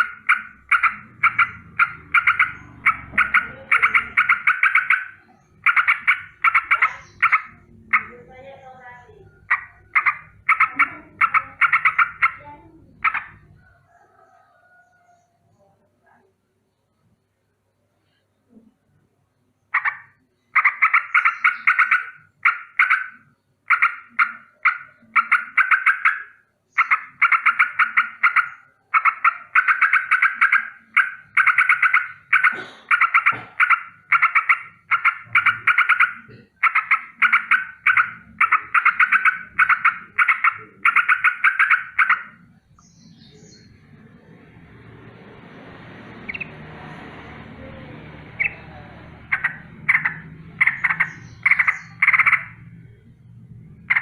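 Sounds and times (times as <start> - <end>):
bird rattling alarm call: 0.0 - 8.3, 9.4 - 13.4, 19.7 - 42.4, 46.3 - 46.5, 48.4 - 48.6, 49.2 - 52.7.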